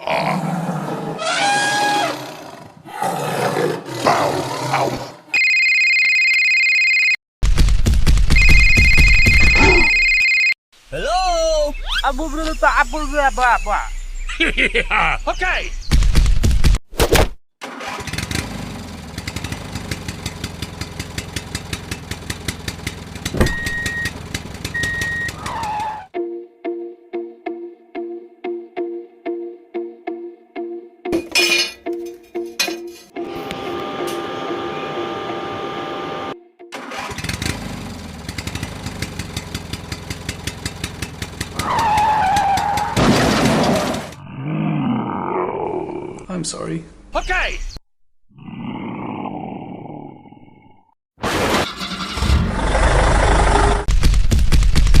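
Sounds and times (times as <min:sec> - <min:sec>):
short high beeps: 0:08.4 - 0:10.5
rapid engine ticking: 0:19.1 - 0:23.3, 0:38.2 - 0:41.6.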